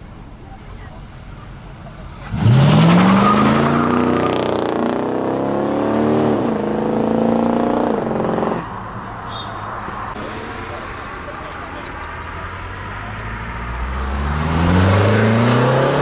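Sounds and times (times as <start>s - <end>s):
car engine accelerating hard: 1.0s - 16.0s.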